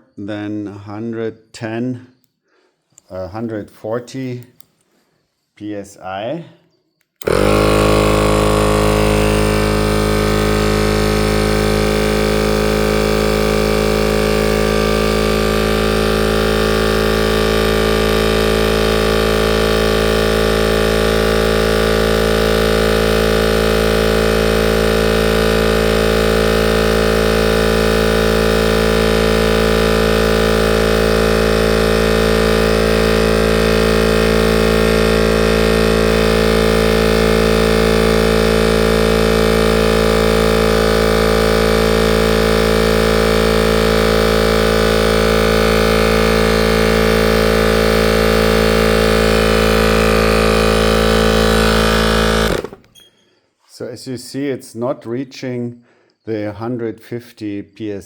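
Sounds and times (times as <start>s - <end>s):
air compressor running: 7.2s - 53.4s.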